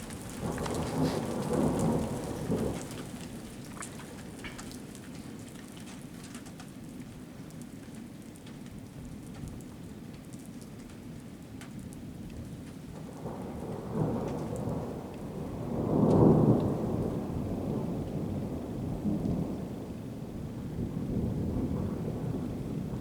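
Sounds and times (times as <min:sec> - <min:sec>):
rolling thunder: 0:00.0 - 0:03.4, 0:13.0 - 0:23.0
light rain: 0:00.0 - 0:23.0.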